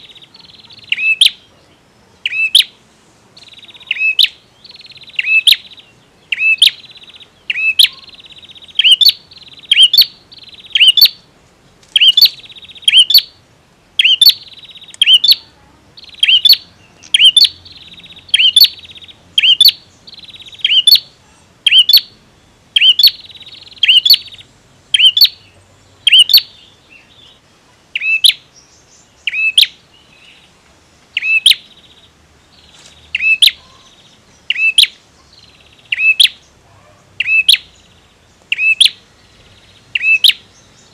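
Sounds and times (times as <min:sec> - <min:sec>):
bird calling sharp notes: 0:00.0 - 0:01.5, 0:02.2 - 0:02.8, 0:03.4 - 0:11.3, 0:11.9 - 0:13.4, 0:14.0 - 0:26.6, 0:28.0 - 0:28.5, 0:29.2 - 0:29.8, 0:31.2 - 0:31.9, 0:33.1 - 0:33.9, 0:34.5 - 0:35.0, 0:35.8 - 0:36.5, 0:37.2 - 0:37.7, 0:38.5 - 0:40.5.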